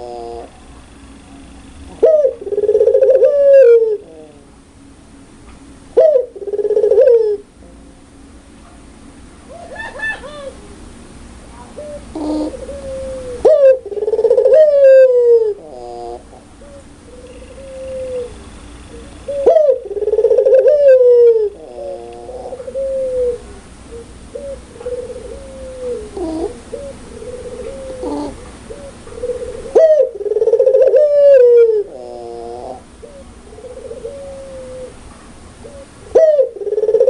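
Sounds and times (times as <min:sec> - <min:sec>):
dove laughing coos: 0:00.0 - 0:00.6, 0:01.9 - 0:04.5, 0:06.0 - 0:07.5, 0:09.5 - 0:10.8, 0:11.8 - 0:35.0, 0:35.6 - 0:37.0
soft short coos: 0:24.8 - 0:29.9.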